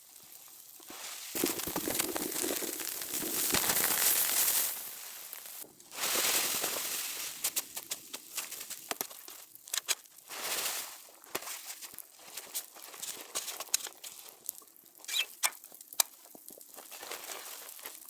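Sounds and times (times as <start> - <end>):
crinkly rustling: 0.4 - 14.7, 16.2 - 18.0
sharp crackles and clicks: 1.3 - 5.7.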